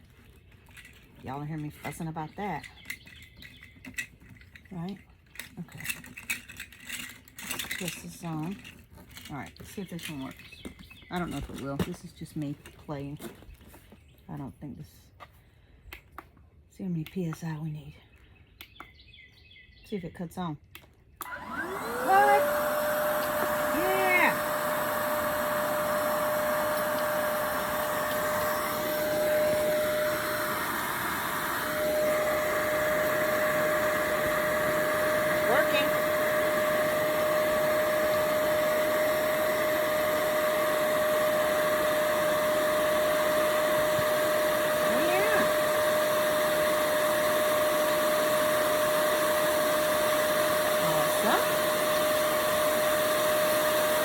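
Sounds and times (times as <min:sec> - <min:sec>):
electric air pump whirring: 0:05.6 - 0:12.4, 0:21.2 - 0:54.0.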